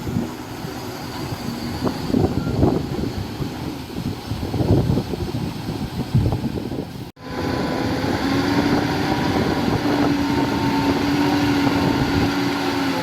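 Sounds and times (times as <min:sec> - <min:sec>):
diesel engine running: 0:07.2 - 0:13.0.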